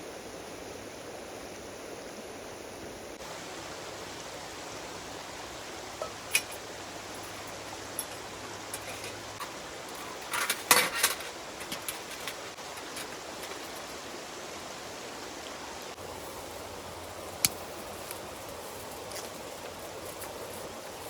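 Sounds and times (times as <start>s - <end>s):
steady outdoor hiss: 0.0s - 21.0s
metal cookware clattering: 7.2s - 13.6s.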